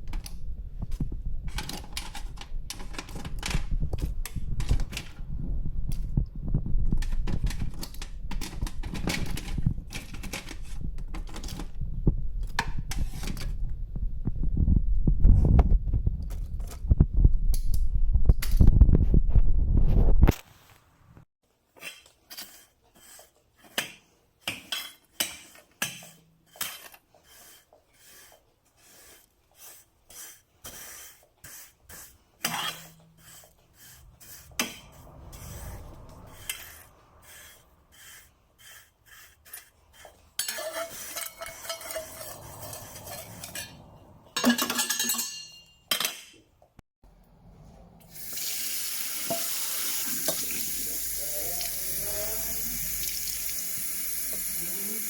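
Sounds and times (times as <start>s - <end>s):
dishes and utensils clinking: 40.4s - 46.4s
tap water running: 48.1s - 55.0s.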